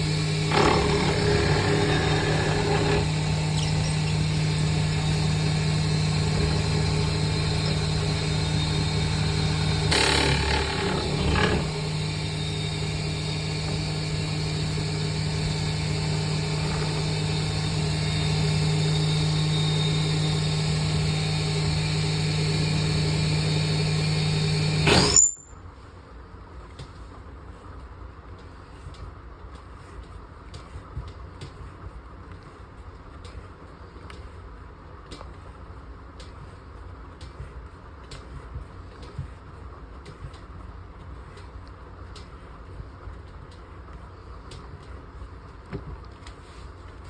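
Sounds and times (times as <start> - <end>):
lathe cutting scraping: 0.0 - 25.2
wood lathe motor hum: 0.0 - 25.2.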